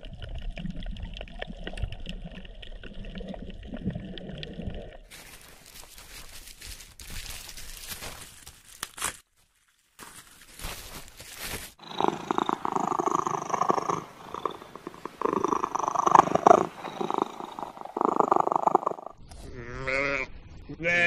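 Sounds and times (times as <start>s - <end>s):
rustling hiss: 10.9s - 19.1s
cat purring: 11.8s - 19.2s
lamb bleating: 19.5s - 21.0s.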